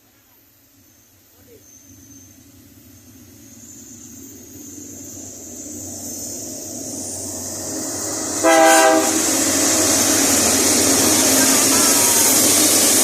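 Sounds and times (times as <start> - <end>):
freight train running noise: 0.0 - 13.0
locomotive horn blast: 8.3 - 9.8.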